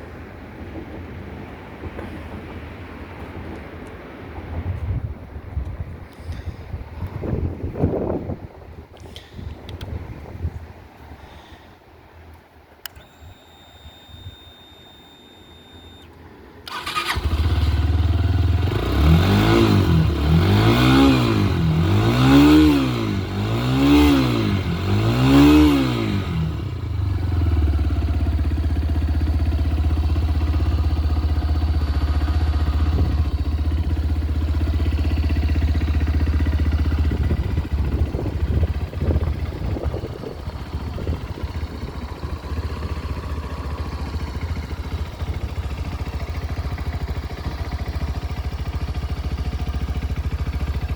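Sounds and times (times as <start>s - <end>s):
motorcycle engine revving and idling: 12.8s - 50.9s.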